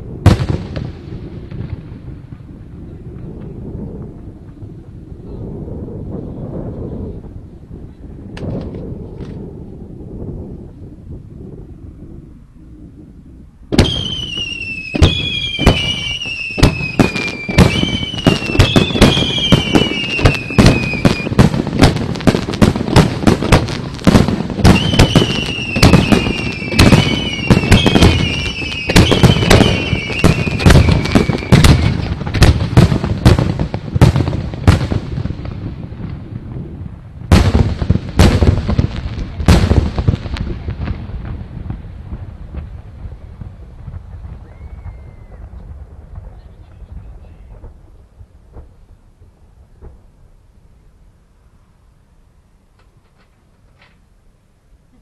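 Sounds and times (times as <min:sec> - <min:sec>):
fireworks bangs and crackles: 0:00.0 - 0:51.0
falling firework whistles: 0:13.7 - 0:34.8, 0:44.2 - 0:45.8.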